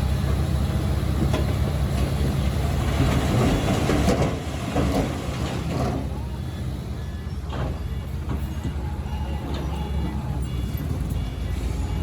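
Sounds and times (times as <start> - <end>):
bulldozer diesel engine running: 0.0 - 12.0
steel tracks clanking and rattling: 1.1 - 6.4.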